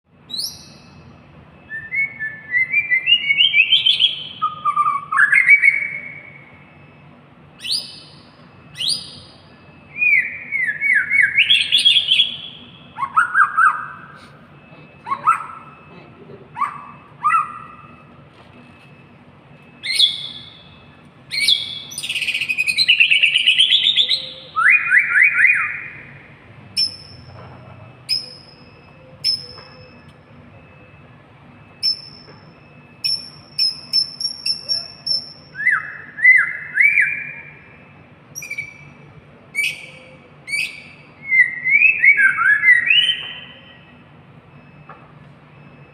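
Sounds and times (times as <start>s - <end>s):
songbird singing whistled phrases: 0.3s - 1.1s, 1.7s - 6.5s, 7.6s - 14.0s, 19.8s - 26.2s, 28.1s - 30.1s, 31.8s - 32.3s, 33.0s - 37.8s, 38.4s - 39.0s, 39.6s - 43.9s.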